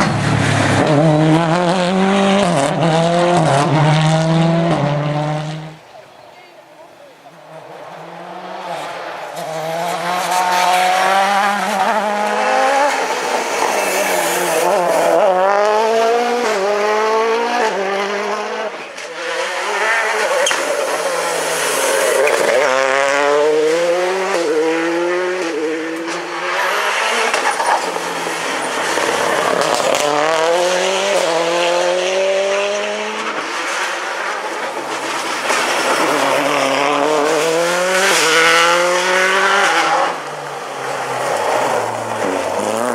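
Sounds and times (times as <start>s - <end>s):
rally car engines revving: 0.0s - 42.9s.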